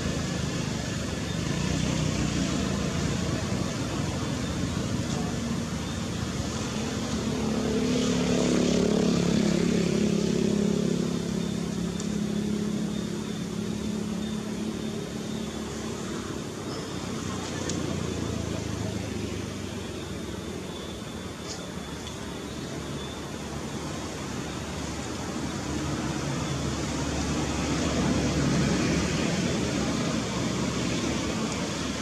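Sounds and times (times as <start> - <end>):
vehicle engine passing by: 0.0 - 20.2.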